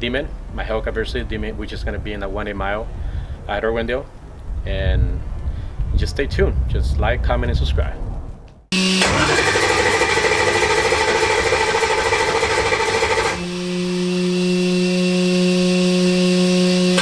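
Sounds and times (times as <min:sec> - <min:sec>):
engine running rough: 0:08.8 - 0:17.0
steady even-pitched hum: 0:10.1 - 0:17.0.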